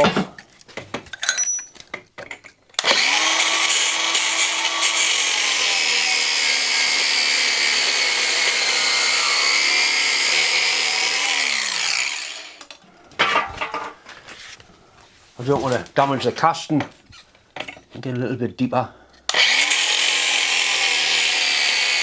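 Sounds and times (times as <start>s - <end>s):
power tool grinding steel bolt: 2.8s - 12.8s, 19.3s - 22.0s.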